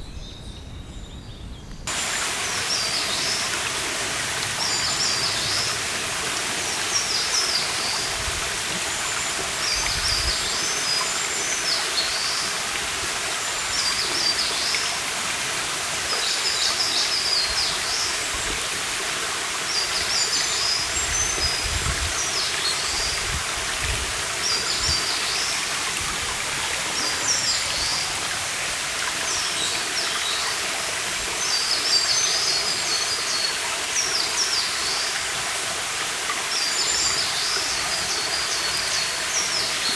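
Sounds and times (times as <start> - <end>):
songbird singing: 0.0 - 12.6
stream water running: 1.8 - 39.9.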